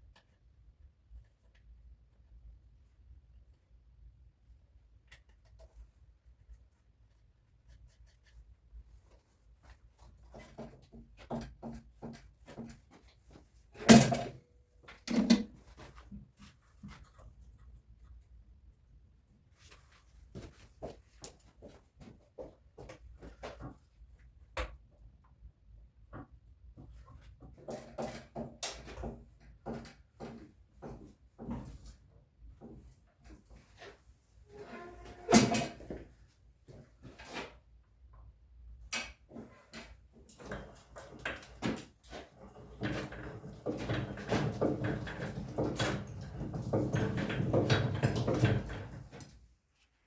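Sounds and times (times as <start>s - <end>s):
tools and metal parts clattering: 13.8s - 15.9s, 39.6s - 49.5s.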